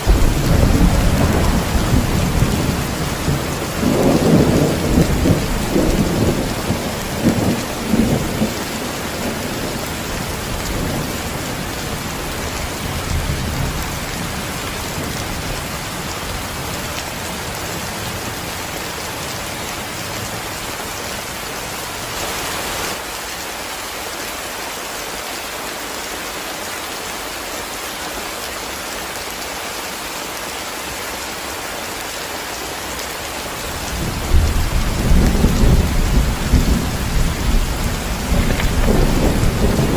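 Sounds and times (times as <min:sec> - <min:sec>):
heavy rain: 0:00.0 - 0:39.9
low thunder rumble: 0:00.1 - 0:12.0, 0:33.8 - 0:39.9.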